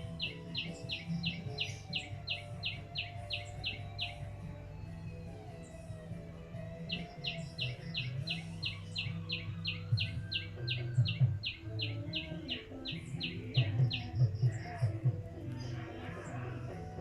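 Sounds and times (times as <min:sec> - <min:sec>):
bird sharp repeated chirps: 0:00.0 - 0:04.4, 0:06.8 - 0:15.0.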